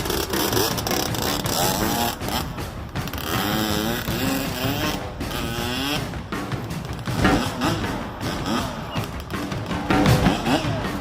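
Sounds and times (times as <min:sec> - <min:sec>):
dirt bike engine revving: 0:00.0 - 0:06.2, 0:07.0 - 0:11.0.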